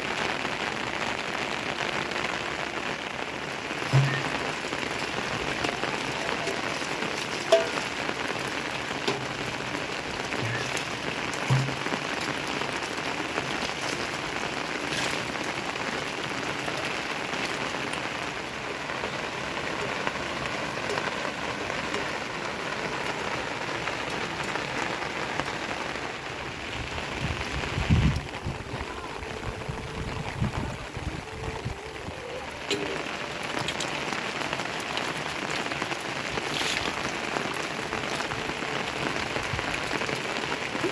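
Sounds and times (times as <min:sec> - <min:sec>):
steady rain falling: 0:00.0 - 0:40.9
louder drops tapping: 0:03.9 - 0:04.6, 0:10.4 - 0:12.5.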